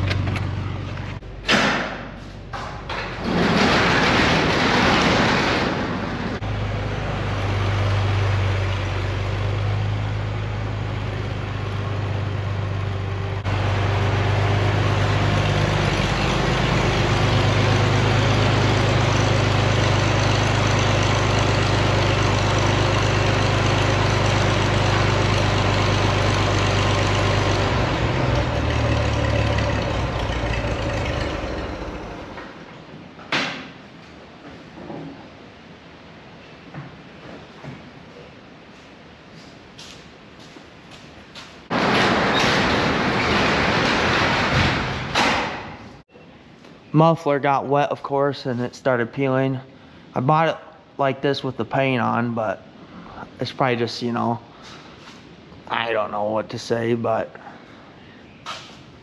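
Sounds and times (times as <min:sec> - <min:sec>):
tractor engine idling: 0:00.0 - 0:01.5, 0:06.2 - 0:32.7.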